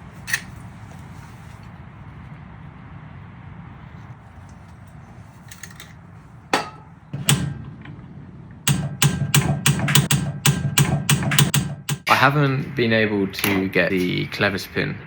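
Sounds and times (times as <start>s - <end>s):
steady low hum: 0.0s - 15.0s
sharp knocks: 6.6s - 12.1s.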